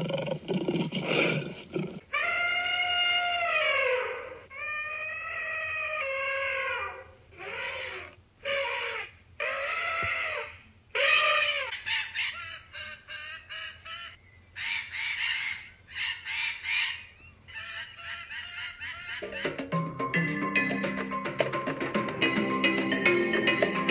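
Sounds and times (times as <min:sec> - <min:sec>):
macaw squawking: 0:07.4 - 0:23.9.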